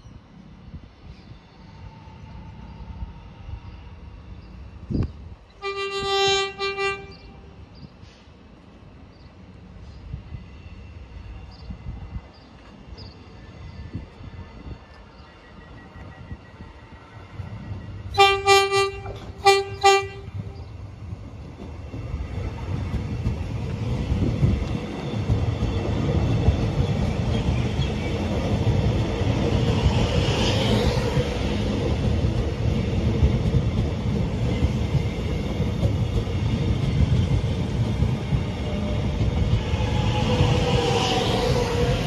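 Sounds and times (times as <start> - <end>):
train wheels rumbling on rails: 0.7 - 42.0
train horn short toots: 5.6 - 7.5, 18.2 - 20.7.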